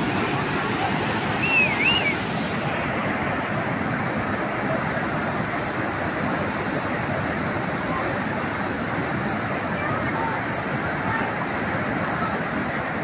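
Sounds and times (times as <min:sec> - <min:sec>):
floodwater rushing: 0:00.0 - 0:13.0
wavering high call: 0:01.3 - 0:02.3.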